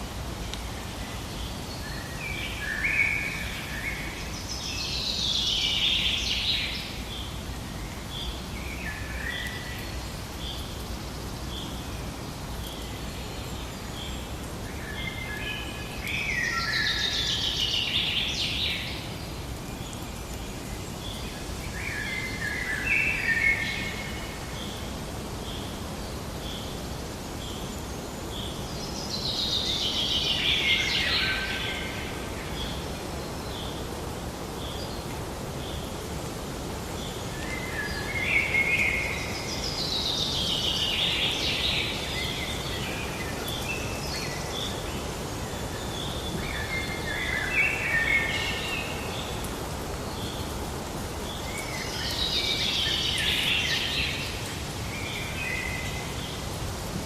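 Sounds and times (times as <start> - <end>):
outdoor hiss: 0.0 - 57.0
birds singing: 36.9 - 56.6.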